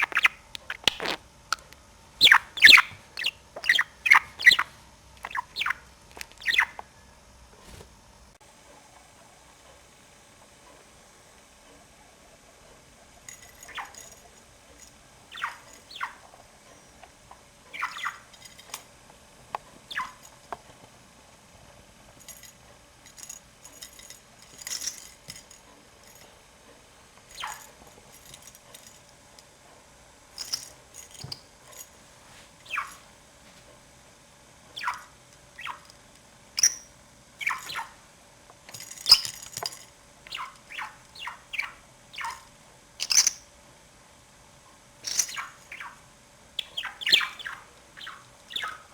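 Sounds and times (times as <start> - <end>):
budgerigar chirping: 0.0 - 1.2, 2.2 - 5.8, 6.4 - 6.8, 15.3 - 16.2, 17.7 - 18.3, 19.9 - 20.2, 32.6 - 33.0, 34.8 - 35.8, 37.4 - 37.9, 40.3 - 43.4, 45.1 - 46.0, 46.6 - 48.9.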